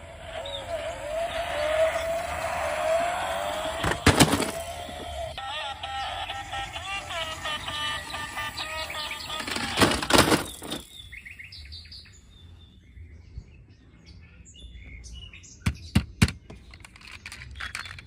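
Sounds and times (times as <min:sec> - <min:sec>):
bird-like chirping: 0:04.6 - 0:13.1.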